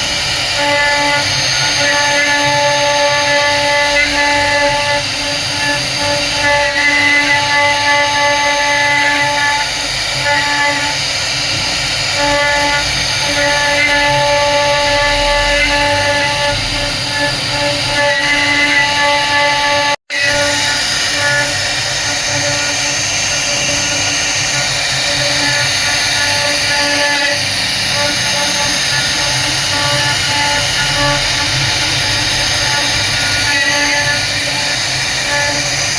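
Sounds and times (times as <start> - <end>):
router spindle whining carving wood: 0.0 - 35.9.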